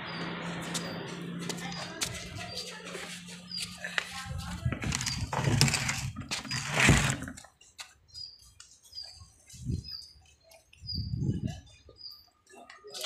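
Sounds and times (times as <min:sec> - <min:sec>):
small bird chirping: 0:00.0 - 0:04.0, 0:07.6 - 0:13.0
loud rustling: 0:01.6 - 0:07.4.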